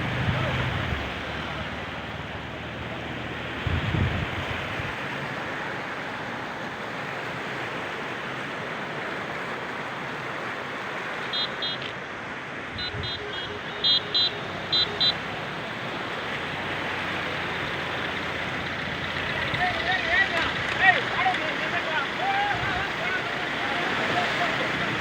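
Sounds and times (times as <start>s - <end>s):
short high-pitched beeps: 11.3s - 11.9s, 12.8s - 15.2s
rushing water hiss: 13.6s - 25.0s.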